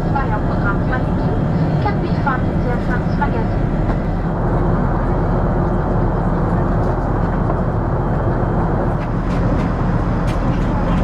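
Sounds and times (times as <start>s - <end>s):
aircraft cabin low rumble: 0.0s - 11.0s.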